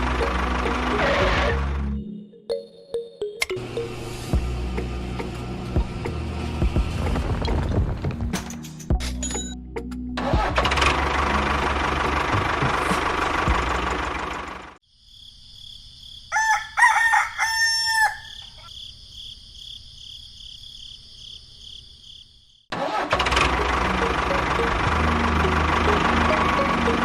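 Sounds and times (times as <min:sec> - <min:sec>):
small engine rattling: 0:10.2 - 0:14.8, 0:22.7 - 0:27.0
rooster crowing: 0:16.3 - 0:18.7.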